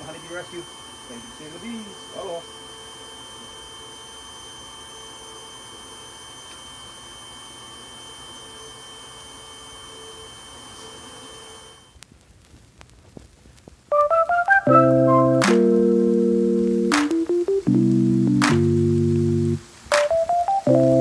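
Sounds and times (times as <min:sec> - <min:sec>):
faint clicks: 0:12.0 - 0:13.8
keyboard music notes: 0:13.9 - 0:21.0
hum of held tones: 0:14.6 - 0:21.0.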